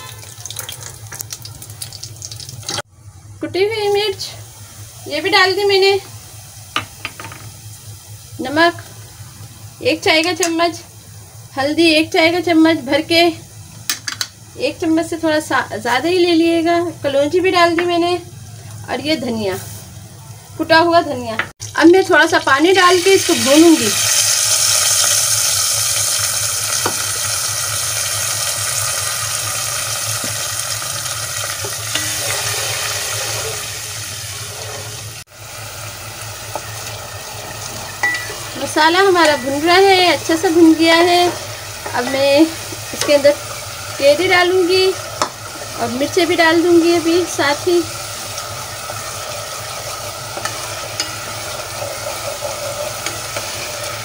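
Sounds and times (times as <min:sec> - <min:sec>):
spices sizzling in hot oil: 0:00.0 - 0:02.9, 0:03.5 - 0:54.0
spatula stirring in a pan: 0:31.4 - 0:35.2, 0:47.1 - 0:54.0.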